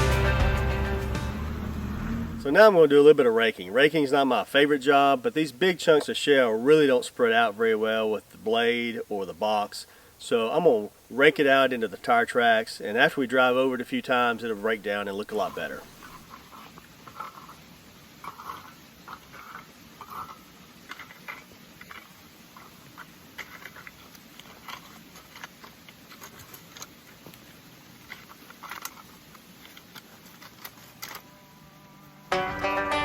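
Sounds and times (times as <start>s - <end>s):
plucked string music: 0.0s - 2.4s, 31.8s - 33.0s
rake scraping shale on gravel: 11.4s - 31.4s.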